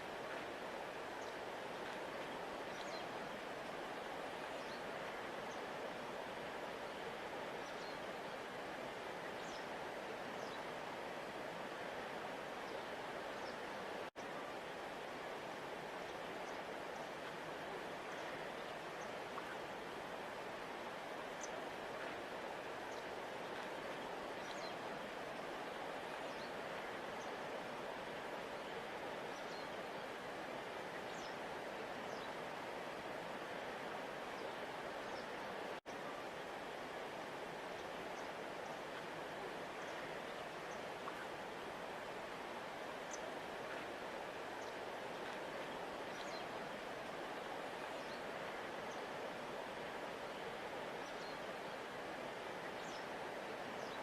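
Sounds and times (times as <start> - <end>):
river rushing: 0.0 - 54.0.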